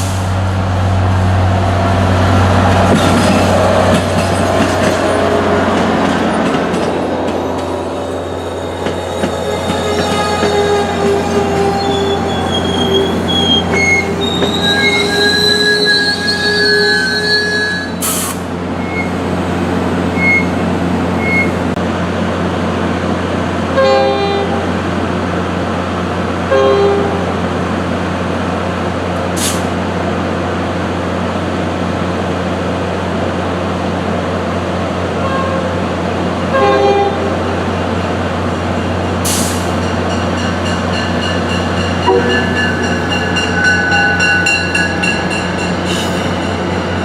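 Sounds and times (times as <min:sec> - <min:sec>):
train drone and rumble: 0:00.0 - 0:47.0
wheel squeal: 0:08.2 - 0:19.2, 0:20.1 - 0:20.6, 0:21.2 - 0:21.6.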